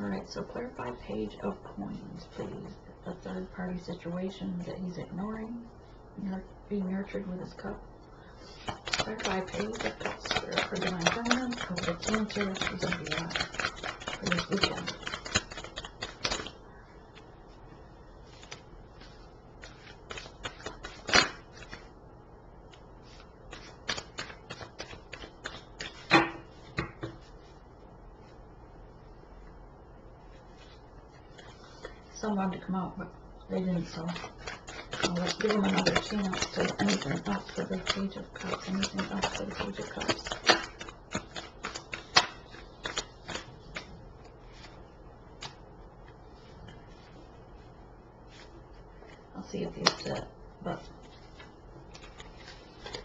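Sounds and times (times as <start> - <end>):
cards being shuffled by hand: 8.4 - 16.6, 18.3 - 21.9, 22.7 - 27.6, 33.8 - 44.8, 45.4 - 47.1, 48.3 - 53.0.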